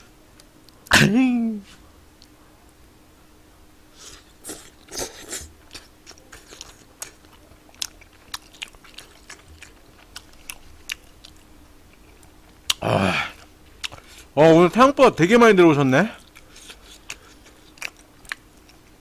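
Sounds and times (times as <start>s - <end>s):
person chewing food: 4.0s - 14.4s, 16.2s - 19.0s.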